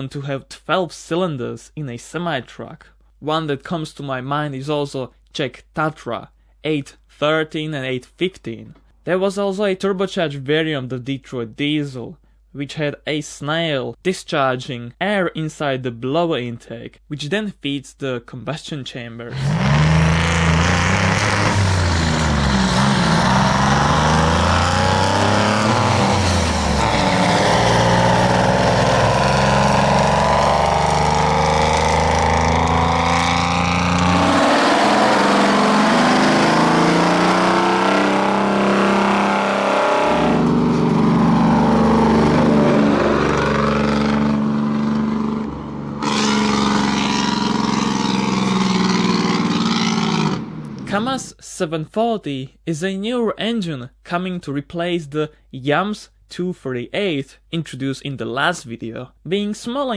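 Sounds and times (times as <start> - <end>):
diesel truck engine revving: 19.3 - 51.3.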